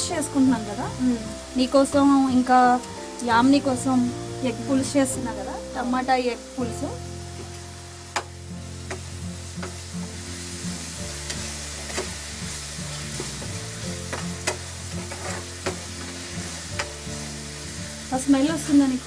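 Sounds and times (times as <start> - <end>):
food sizzling in hot oil: 0.0 - 19.0
metal spoon scraping a pan: 11.2 - 17.4.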